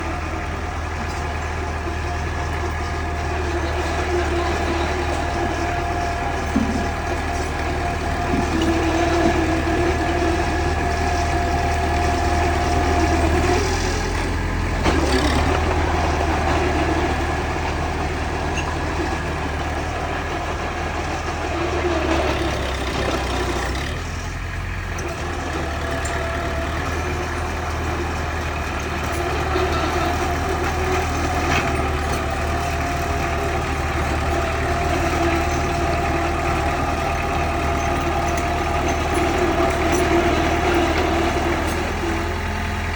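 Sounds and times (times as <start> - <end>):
bulldozer running: 0.0 - 42.9.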